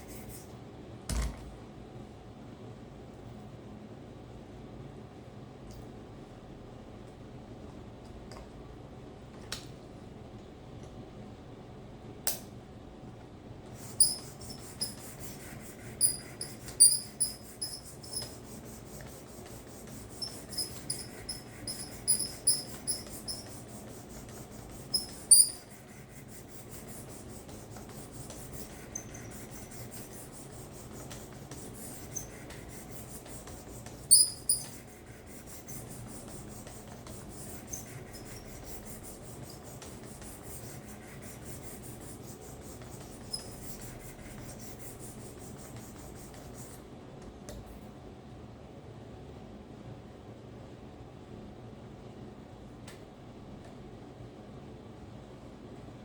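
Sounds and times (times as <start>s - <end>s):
sharpening stone rubbing blade: 14.0s - 15.0s, 20.2s - 23.4s, 24.9s - 25.7s, 34.1s - 34.7s
high-pitched squeaks: 24.9s - 25.7s, 34.1s - 34.8s.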